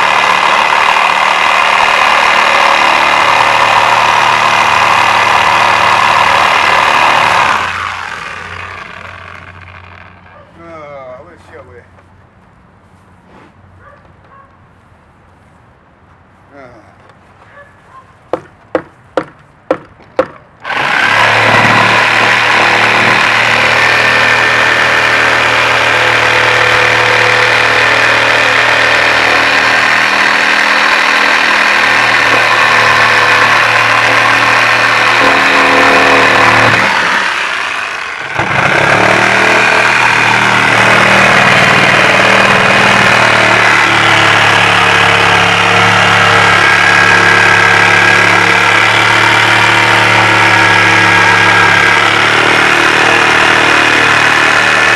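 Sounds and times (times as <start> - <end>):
engine running: 0.0 - 10.6, 20.6 - 54.9
sharp knocks: 18.3 - 24.1.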